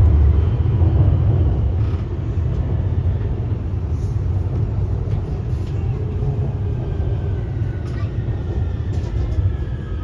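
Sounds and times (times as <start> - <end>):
metro train low rumble: 0.0 - 10.0.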